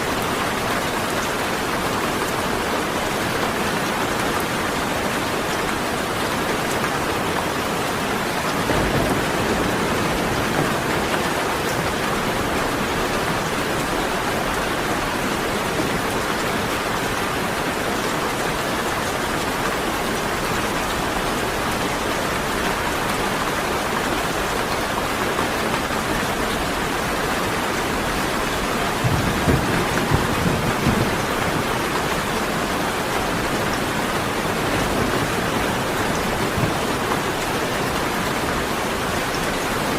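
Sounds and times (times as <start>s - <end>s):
heavy rain falling: 0.0s - 39.9s
rolls of thunder: 8.6s - 11.5s.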